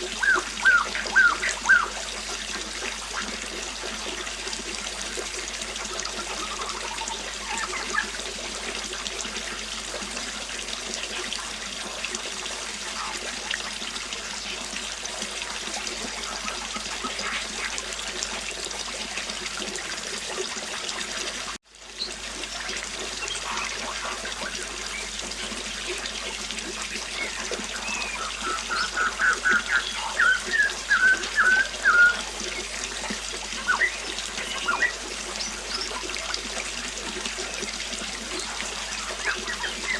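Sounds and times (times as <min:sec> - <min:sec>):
birds chirping: 0:00.0 - 0:02.0, 0:06.2 - 0:08.2, 0:23.1 - 0:26.1, 0:26.7 - 0:36.2, 0:38.4 - 0:39.9
river water flowing: 0:00.0 - 0:39.9.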